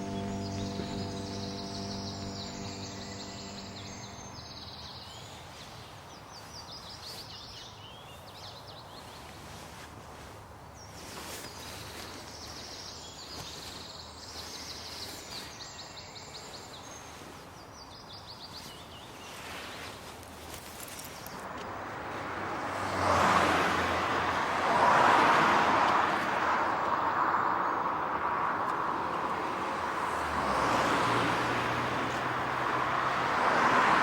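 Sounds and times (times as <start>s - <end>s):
held music tones: 0.0s - 4.9s
bird singing trilled phrases: 0.0s - 5.5s.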